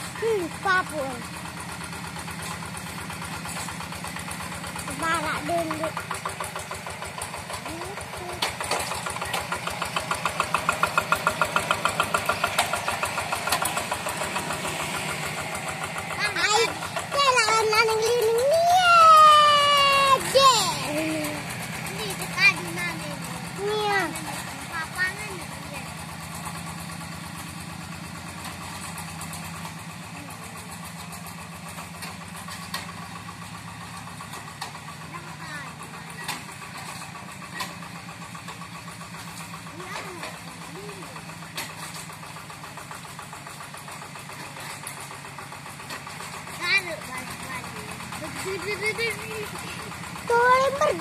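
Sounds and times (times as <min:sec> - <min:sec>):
diesel engine chugging: 0:00.0 - 0:51.0.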